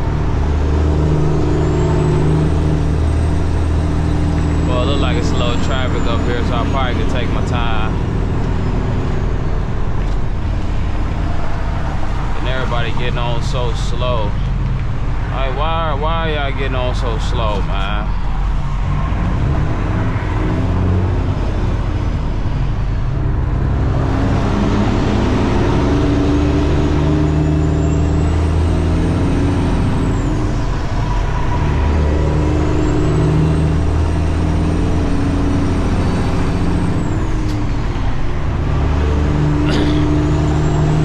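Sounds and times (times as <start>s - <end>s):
high whine: 0.0s - 20.6s
truck diesel engine under load: 0.0s - 41.0s.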